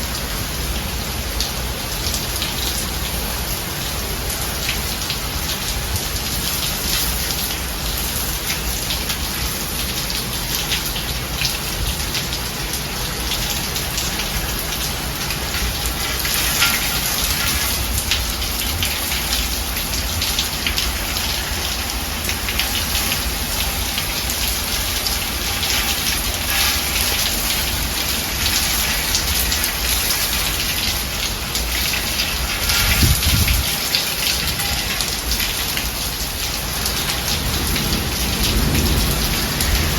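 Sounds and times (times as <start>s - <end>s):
steady rain falling: 0.0s - 39.9s
low rumble of thunder: 32.5s - 33.9s, 36.9s - 39.9s.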